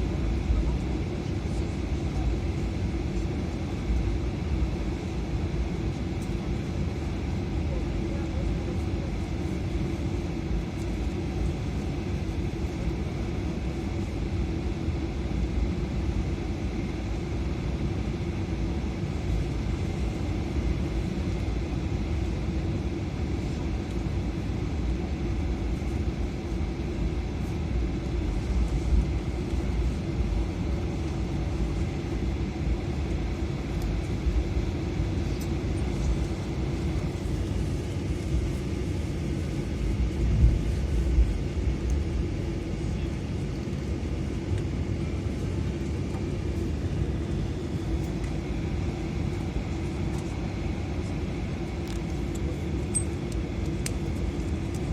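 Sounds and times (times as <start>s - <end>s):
airliner cabin rumble and hum: 0.0s - 54.9s.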